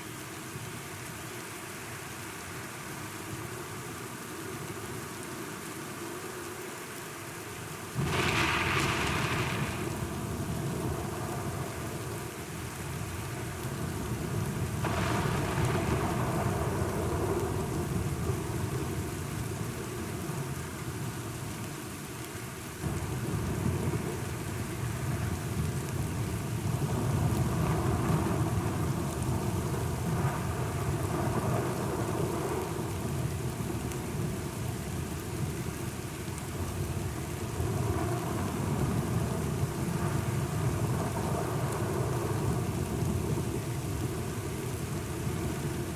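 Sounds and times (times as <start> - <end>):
steady rain: 0.0 - 45.9
thunder rumbling: 8.0 - 11.9, 14.4 - 18.8.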